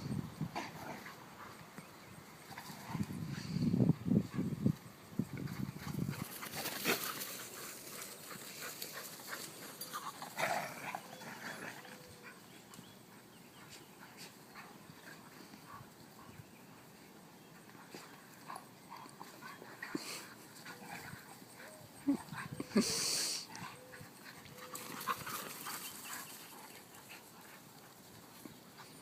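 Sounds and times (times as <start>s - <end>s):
dogs scuffing and clicking: 5.4s - 11.6s, 24.2s - 29.0s.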